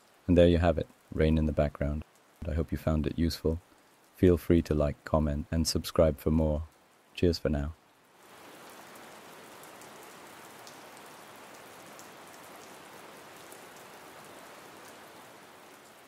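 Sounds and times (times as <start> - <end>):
faint raindrop ticks: 0.0 - 16.0
rain hissing: 0.0 - 16.0.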